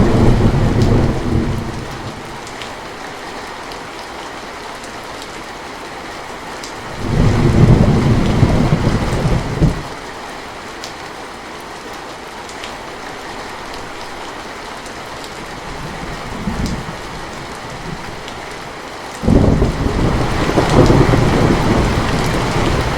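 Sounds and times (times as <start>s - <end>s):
thunder rumbling: 0.0s - 2.5s, 6.9s - 9.9s, 19.2s - 22.9s
steady rain: 0.0s - 22.9s.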